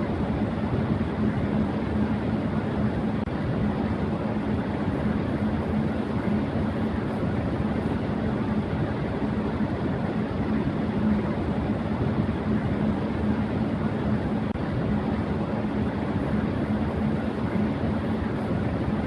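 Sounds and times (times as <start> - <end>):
electric fan running: 0.0 - 19.0.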